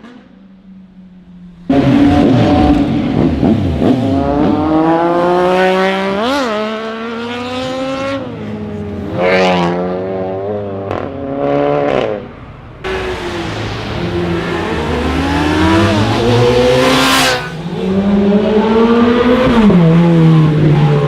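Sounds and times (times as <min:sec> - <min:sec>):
motorcycle engine revving: 0:01.7 - 0:08.3, 0:12.9 - 0:21.0.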